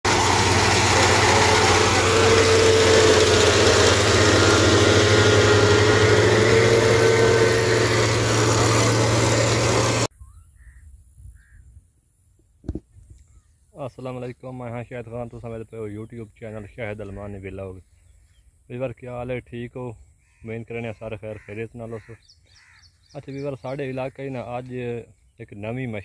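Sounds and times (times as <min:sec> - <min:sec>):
combine harvester engine running: 0:00.0 - 0:10.1.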